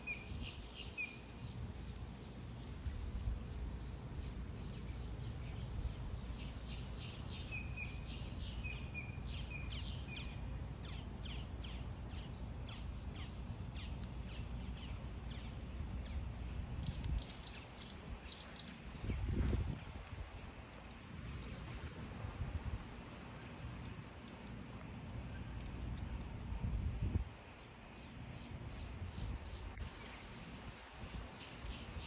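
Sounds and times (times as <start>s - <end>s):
steady low rumble: 8.5s - 32.0s
birds chirping: 16.8s - 20.4s.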